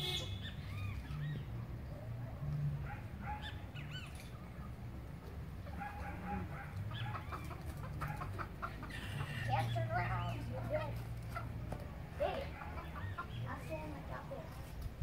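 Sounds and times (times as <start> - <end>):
birds chirping: 0.0 - 14.7.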